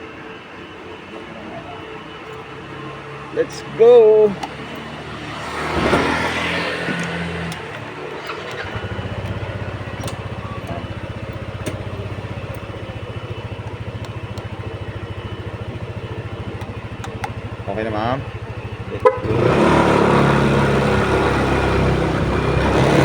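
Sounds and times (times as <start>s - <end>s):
motorcycle engine putter: 5.8s - 19.2s.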